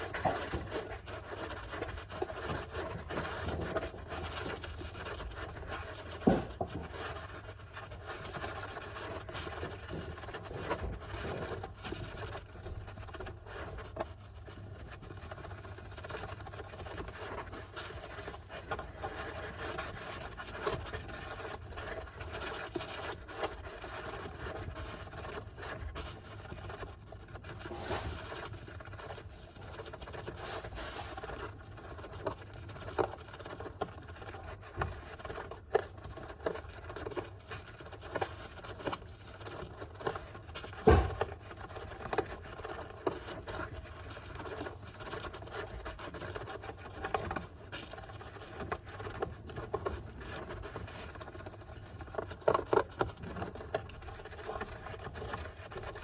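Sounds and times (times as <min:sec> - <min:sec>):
hamster scratching in sand: 0:00.0 - 0:56.0.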